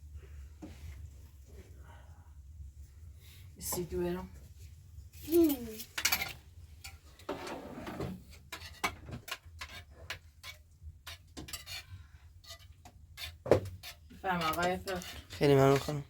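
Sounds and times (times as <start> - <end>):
dishes and utensils clinking: 5.3 - 16.0
utensil scrape: 7.3 - 16.0.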